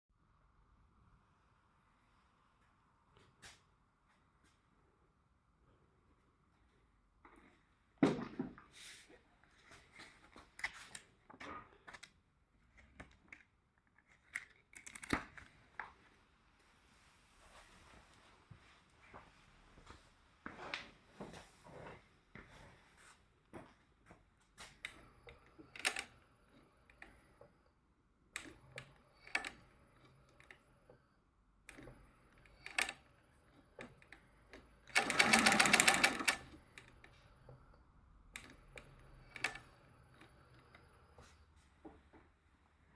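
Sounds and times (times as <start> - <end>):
sewing machine stitching: 24.9 - 27.4, 28.4 - 30.7, 31.7 - 37.7, 38.4 - 41.1.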